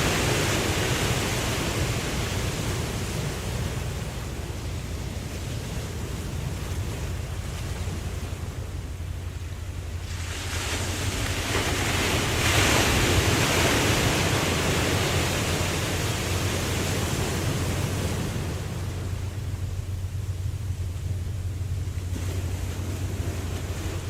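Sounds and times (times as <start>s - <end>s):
low surf rumble: 0.0s - 24.0s
wave breaking: 0.0s - 24.0s.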